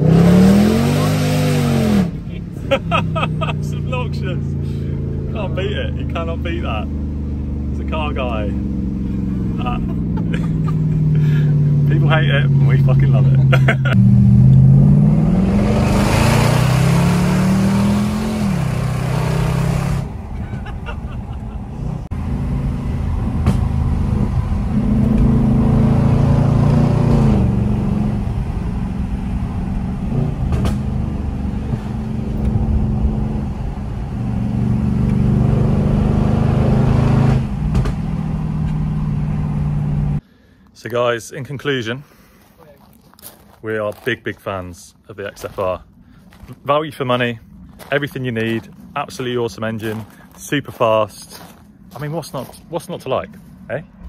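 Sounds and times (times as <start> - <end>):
car engine accelerating: 0.0 - 40.2
wind and exhaust rush: 0.0 - 40.2.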